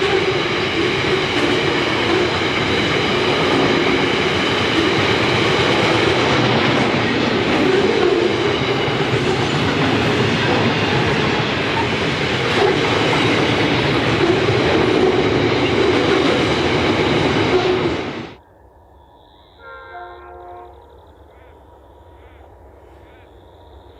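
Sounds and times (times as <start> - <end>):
clickety-clack of rail joints: 0.0 - 18.3
train wheels rumbling on rails: 0.0 - 18.4.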